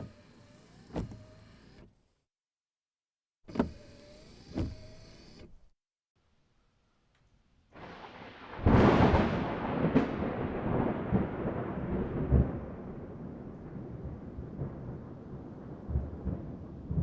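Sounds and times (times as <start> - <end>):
rolling thunder rumble: 7.8 - 17.0
thunder cracks: 7.8 - 17.0.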